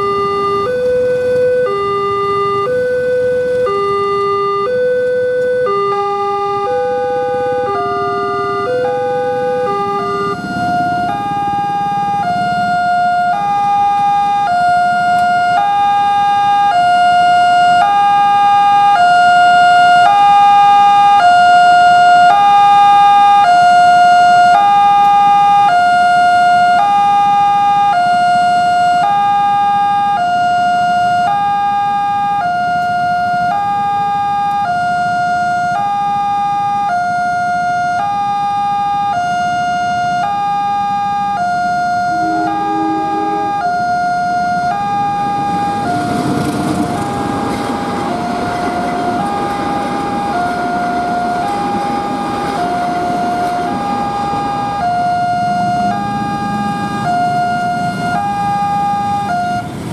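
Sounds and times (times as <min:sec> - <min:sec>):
lower-pitched tones: 0:00.0 - 0:20.2, 0:41.1 - 0:45.9
level crossing two-tone alarm: 0:00.0 - 0:59.9.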